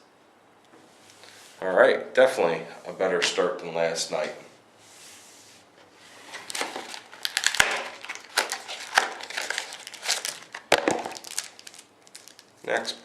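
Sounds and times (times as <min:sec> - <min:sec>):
plastic wrapper crinkling: 0:06.1 - 0:13.0.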